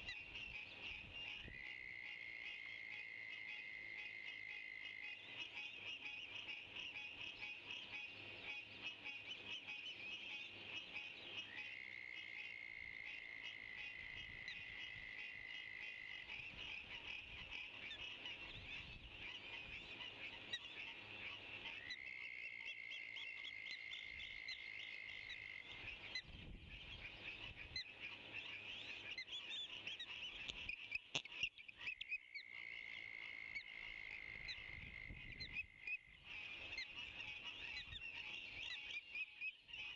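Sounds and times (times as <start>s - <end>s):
frogs calling: 0.0s - 39.9s.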